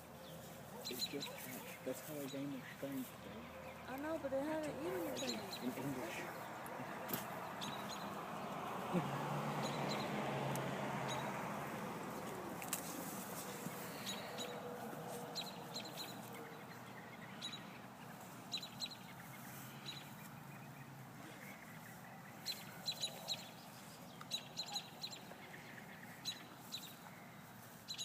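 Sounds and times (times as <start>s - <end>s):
faint steady background noise: 0.0s - 28.0s
bird chirps: 7.5s - 8.2s, 15.3s - 28.0s.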